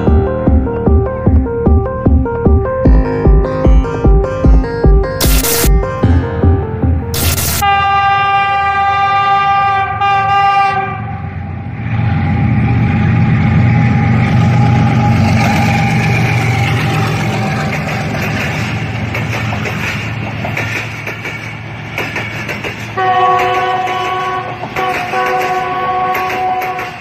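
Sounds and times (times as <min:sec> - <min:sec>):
diesel locomotive engine rumbling: 0:00.0 - 0:05.2, 0:05.8 - 0:27.0
multi-note train horn: 0:07.6 - 0:11.4, 0:23.0 - 0:27.0
train wheels clattering on rail joints: 0:15.0 - 0:27.0.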